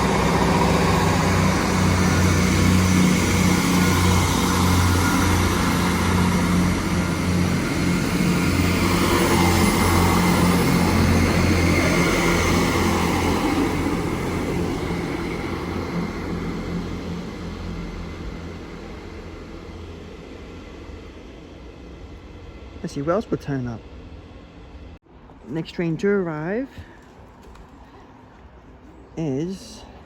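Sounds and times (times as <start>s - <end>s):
diesel engines humming: 0.0s - 25.0s
train rumbling: 0.0s - 25.4s.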